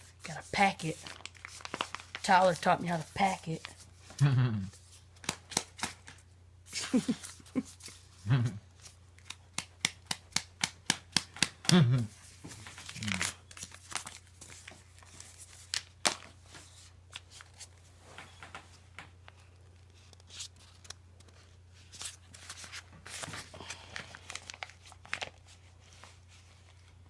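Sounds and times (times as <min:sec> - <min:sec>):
low steady hum: 0:00.0 - 0:27.0
plastic pouch crinkling: 0:00.9 - 0:02.7, 0:12.6 - 0:16.0, 0:22.5 - 0:25.6.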